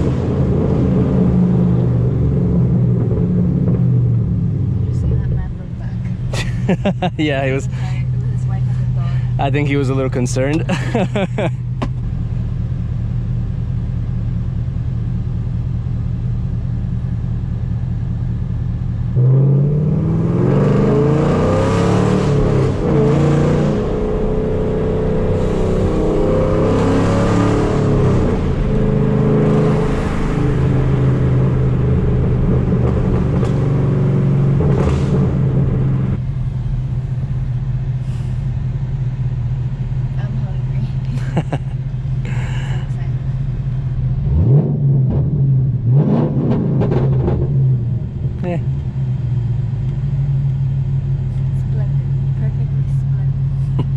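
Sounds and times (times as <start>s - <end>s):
car engine revving loudly: 19.2s - 36.2s, 44.0s - 48.4s.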